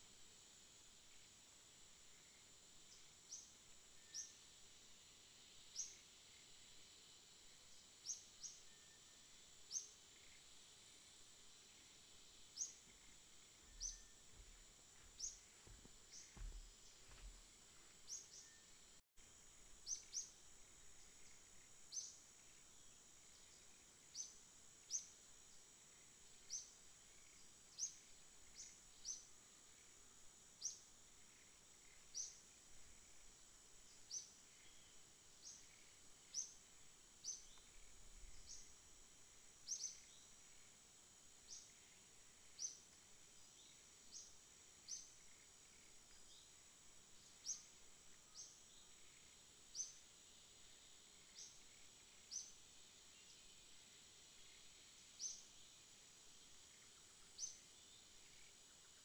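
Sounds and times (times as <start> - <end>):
steady high hiss: 0.0 - 59.0
bird chirping: 12.6 - 17.4
soft low thumps: 12.9 - 17.5.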